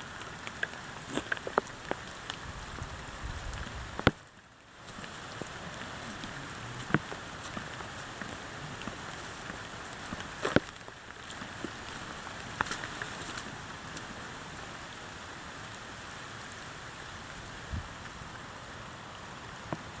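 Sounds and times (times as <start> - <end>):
steady rain: 0.0 - 20.0
raindrop taps: 0.2 - 14.1.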